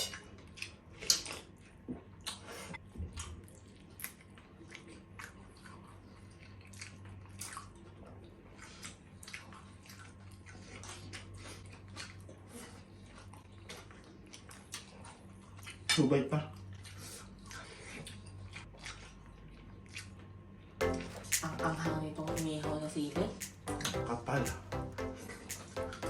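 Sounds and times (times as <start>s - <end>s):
person chewing with mouth smacks: 0.5s - 2.4s.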